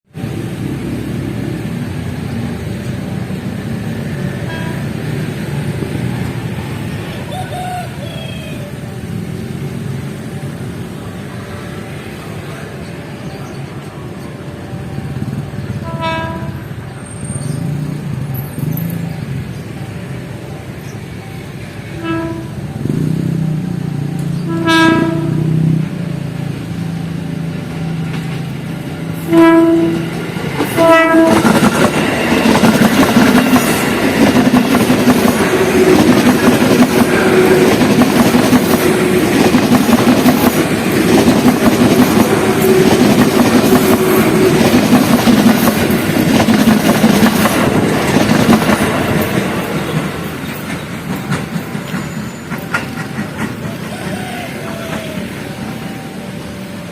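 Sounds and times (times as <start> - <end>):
train wheels rushing on rails: 0.1 - 56.9
train horn: 4.4 - 5.2, 15.2 - 16.8, 22.0 - 23.1, 24.4 - 25.8, 29.2 - 31.7, 42.3 - 44.8.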